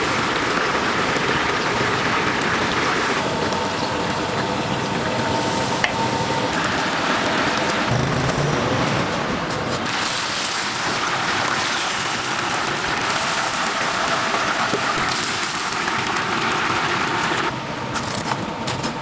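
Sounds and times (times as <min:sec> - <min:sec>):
chicken sizzling in hot oil: 0:09.9 - 0:17.5.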